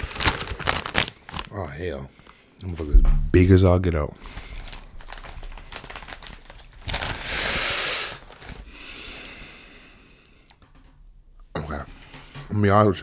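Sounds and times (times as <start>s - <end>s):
foil snack bag crinkling: 0.0s - 1.6s, 4.2s - 8.7s.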